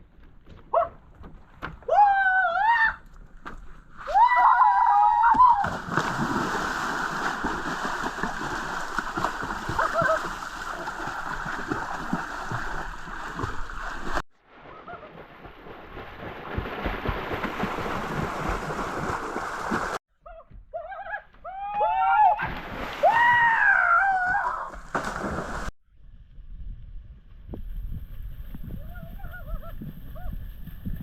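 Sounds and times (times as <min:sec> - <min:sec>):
water splashing and sloshing: 0:05.3 - 0:20.0, 0:22.3 - 0:25.7.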